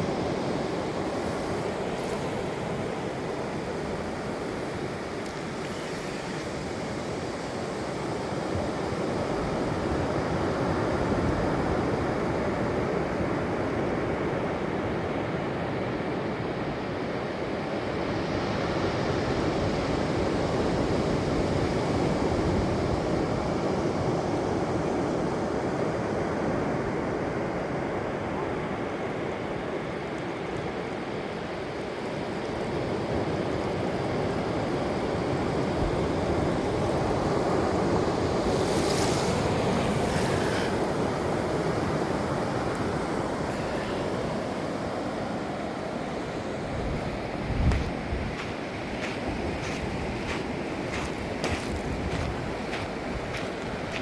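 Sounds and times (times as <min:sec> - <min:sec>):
ocean surf breaking: 0:36.6 - 0:54.0.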